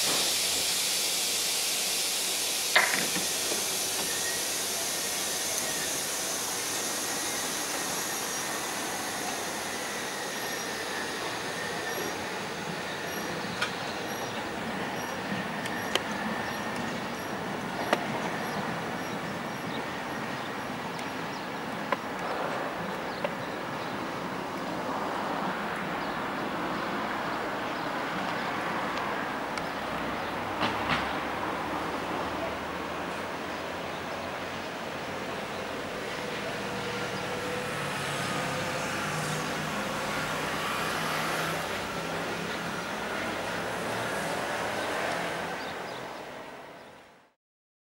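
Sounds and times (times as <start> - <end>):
faint high whine: 0.0 - 28.2
train rolling along track: 0.0 - 47.1.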